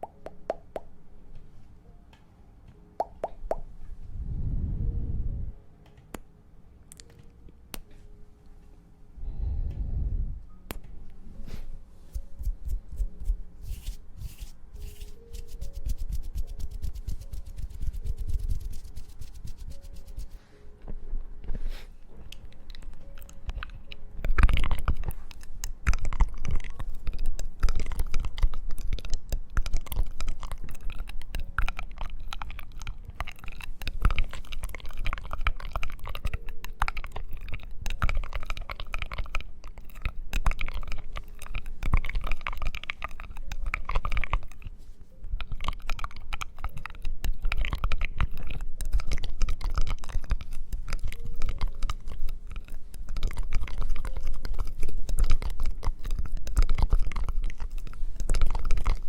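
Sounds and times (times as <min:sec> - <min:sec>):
close crackling and scratching: 0:11.6 - 0:20.4, 0:22.2 - 0:44.8, 0:45.4 - 0:59.0.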